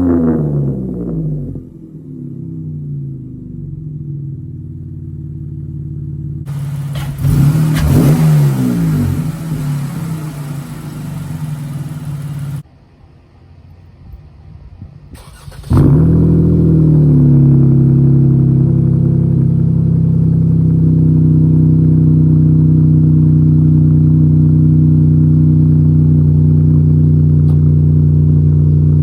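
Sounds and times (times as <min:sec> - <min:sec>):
car engine revving: 0:06.4 - 0:12.6, 0:15.2 - 0:23.7.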